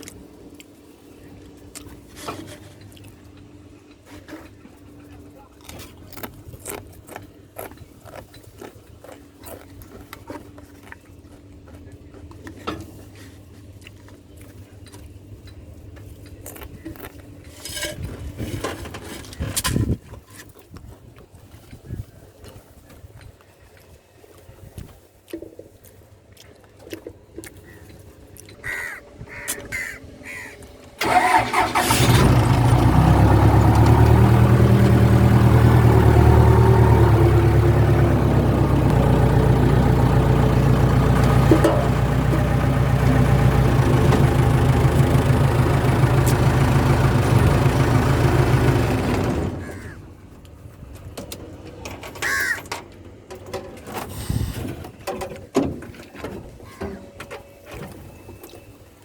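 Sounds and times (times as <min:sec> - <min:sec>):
crows calling: 0:28.5 - 0:30.7, 0:49.6 - 0:50.0, 0:52.2 - 0:52.7
vehicle engine idling: 0:29.3 - 0:50.4.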